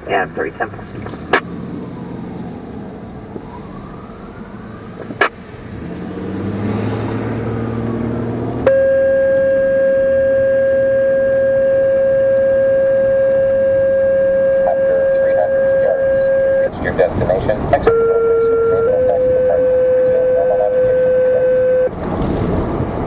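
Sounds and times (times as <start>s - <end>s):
siren wailing: 0.0s - 6.0s, 6.7s - 22.0s
fire engine revving: 0.0s - 23.0s
loud steady horn tone: 8.6s - 22.0s.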